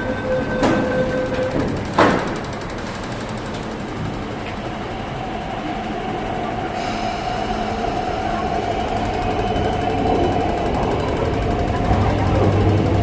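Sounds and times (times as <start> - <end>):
train whine: 0.0 - 13.0
high hiss: 5.4 - 9.4.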